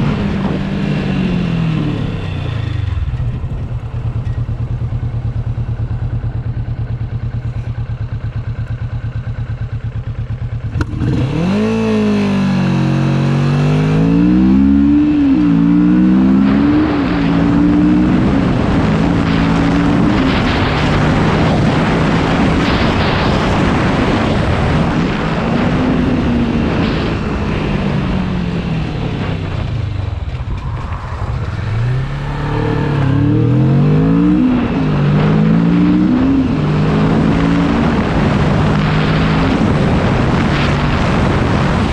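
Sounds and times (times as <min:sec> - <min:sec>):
motorcycle engine revving: 0:00.0 - 0:41.9
rushing noise: 0:13.1 - 0:41.9.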